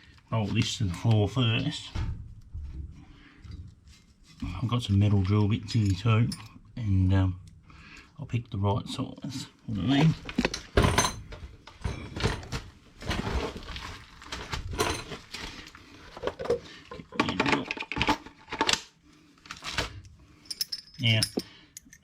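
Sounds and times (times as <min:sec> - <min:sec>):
metal drill bits clinking: 0:20.4 - 0:22.0.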